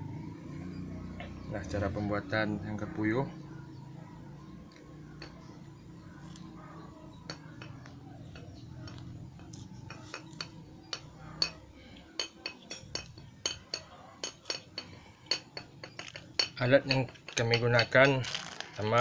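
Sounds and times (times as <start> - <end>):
hand tools clinking: 7.2 - 19.0.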